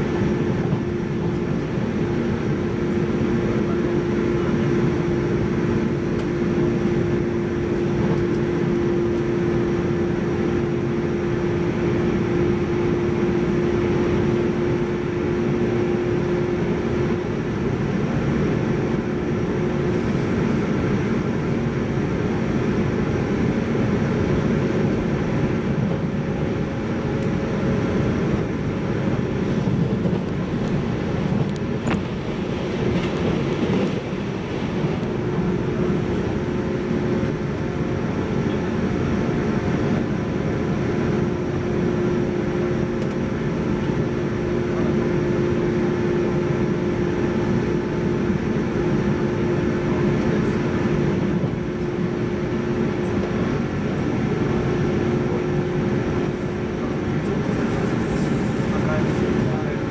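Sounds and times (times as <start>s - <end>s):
train wheels rumbling: 12.4s - 59.9s.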